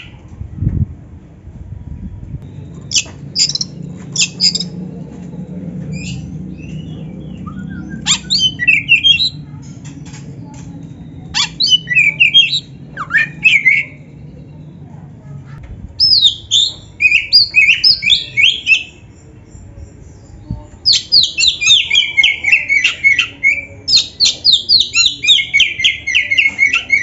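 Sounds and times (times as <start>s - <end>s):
bird singing whistled notes: 2.4s - 4.8s, 5.9s - 9.4s, 16.0s - 19.0s, 20.2s - 27.0s.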